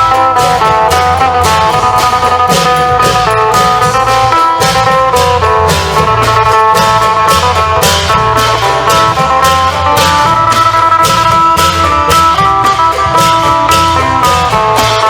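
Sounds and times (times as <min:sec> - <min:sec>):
cymbal and drum strokes: 0:00.0 - 0:15.0
low bass notes: 0:00.0 - 0:15.0
plucked lute melody: 0:00.0 - 0:15.0.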